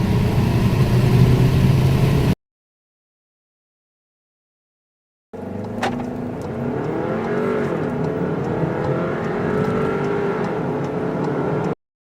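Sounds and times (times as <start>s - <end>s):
car engine accelerating: 0.0s - 2.4s, 5.4s - 11.8s.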